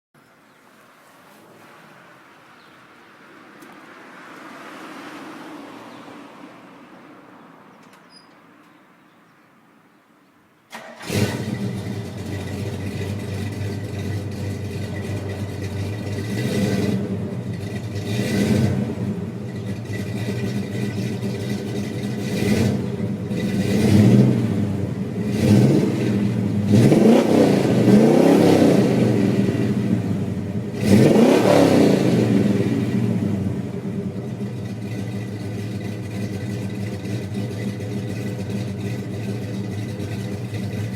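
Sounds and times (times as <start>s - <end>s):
car engine starting: 10.7s - 40.9s
engine idling with throttle blips: 11.0s - 40.9s.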